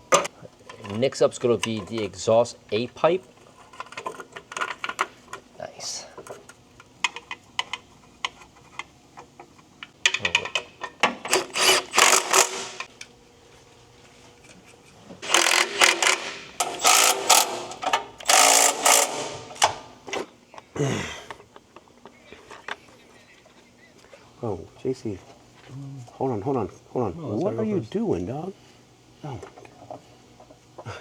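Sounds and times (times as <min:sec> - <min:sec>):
cordless power tool rattling: 0:11.3 - 0:12.9, 0:15.2 - 0:19.8.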